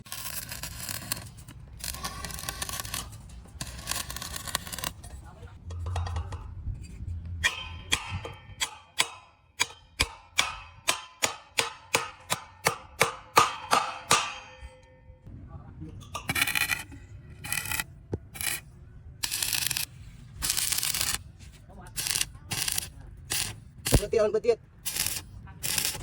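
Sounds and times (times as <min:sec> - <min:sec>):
hammer clanging on steel: 0:07.4 - 0:15.2.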